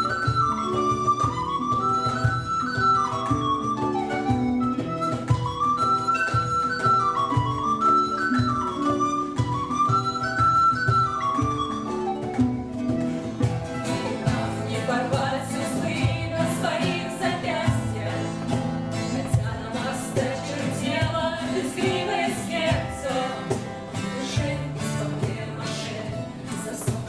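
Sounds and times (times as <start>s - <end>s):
flute melody: 0.0s - 18.6s
strummed acoustic accompaniment: 0.0s - 27.0s.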